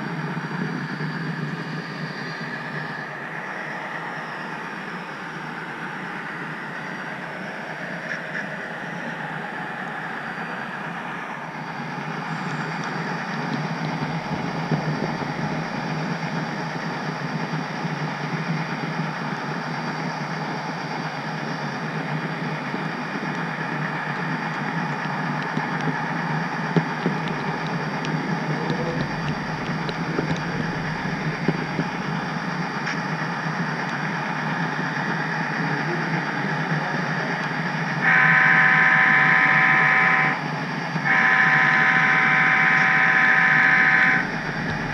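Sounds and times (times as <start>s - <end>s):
model train engine rumble: 0.0s - 44.9s
wheels rattling on track: 0.0s - 44.9s
loud chord horn: 38.0s - 44.9s.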